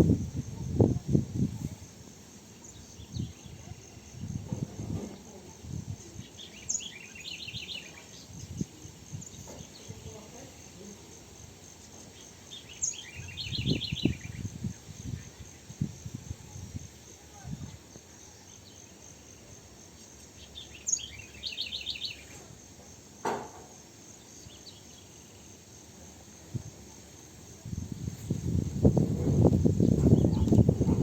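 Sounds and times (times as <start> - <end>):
insect trill: 0.0 - 31.0
low rustling and knocks: 4.3 - 5.4.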